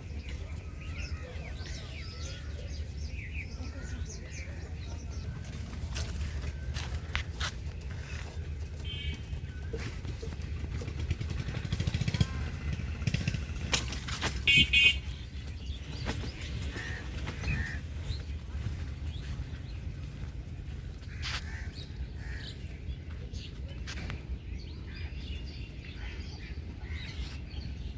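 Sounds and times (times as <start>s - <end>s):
vehicle engine running: 0.0s - 27.9s
horn toots: 8.8s - 9.6s, 14.2s - 15.2s.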